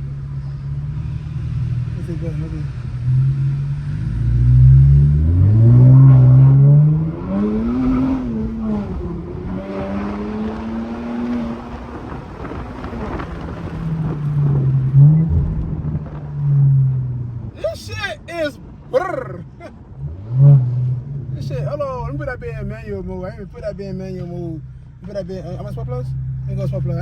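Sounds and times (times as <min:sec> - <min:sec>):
engine revving: 0:00.0 - 0:17.2, 0:20.0 - 0:22.3
car engine accelerating hard: 0:00.0 - 0:17.6, 0:19.0 - 0:23.0.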